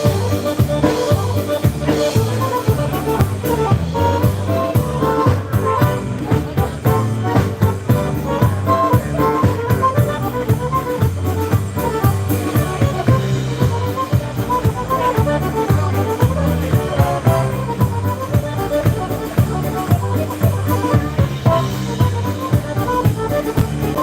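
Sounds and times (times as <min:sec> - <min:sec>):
accordion melody: 0:00.0 - 0:24.0
polka band playing: 0:00.0 - 0:24.0.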